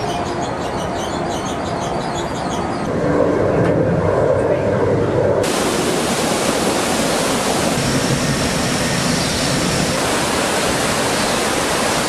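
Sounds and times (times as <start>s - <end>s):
rush of falling water: 5.4s - 12.0s.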